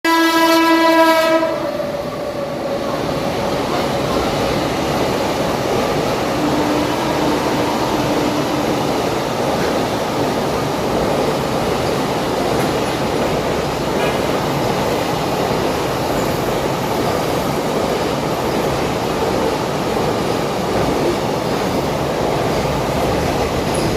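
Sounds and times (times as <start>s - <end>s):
train wagons rumbling on track: 0.2s - 23.9s.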